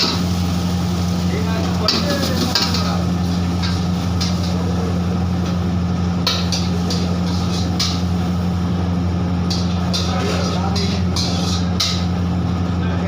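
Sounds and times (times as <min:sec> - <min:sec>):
steady low hum: 0:00.0 - 0:13.0
metal spatula scraping a wok: 0:06.3 - 0:08.1, 0:09.5 - 0:12.1.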